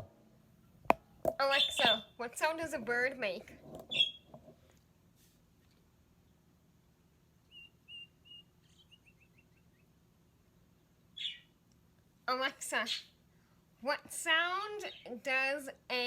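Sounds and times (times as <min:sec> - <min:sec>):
recorded bird chirps through speaker: 0:01.4 - 0:02.2, 0:03.9 - 0:04.3, 0:07.5 - 0:09.9, 0:11.1 - 0:11.6, 0:14.8 - 0:15.2.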